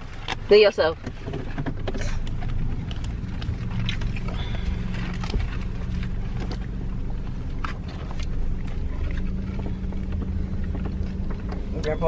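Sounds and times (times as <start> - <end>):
engine and road drone in car: 0.0 - 12.0.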